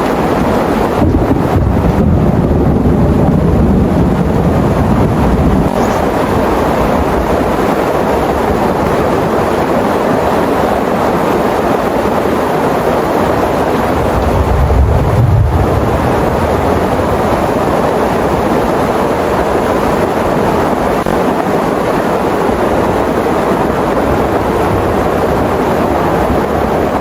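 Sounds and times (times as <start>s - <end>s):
heavy rain pouring: 0.0s - 27.0s
deep rumble: 0.9s - 8.7s, 13.8s - 18.5s.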